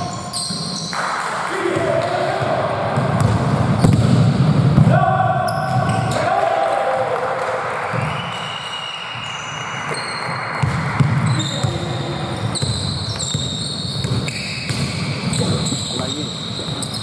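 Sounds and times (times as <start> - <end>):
sneakers squeaking on floor: 0.0 - 1.2, 1.8 - 6.3, 7.9 - 17.0
basketball bouncing: 0.5 - 6.2, 10.6 - 15.6.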